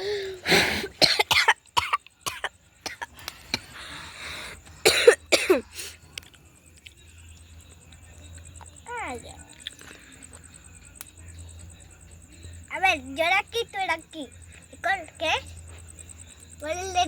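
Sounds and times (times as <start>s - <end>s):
child coughing: 0.9s - 3.1s, 4.8s - 5.8s.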